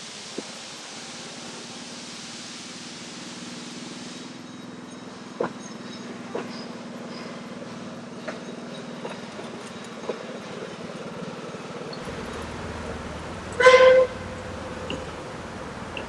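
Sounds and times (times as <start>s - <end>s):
sharp clanks: 12.0s - 16.0s
steady low hum: 12.0s - 16.0s.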